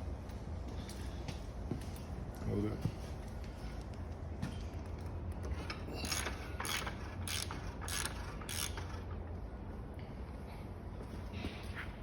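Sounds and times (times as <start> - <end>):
ratchet wrench clicking: 6.0 - 9.2.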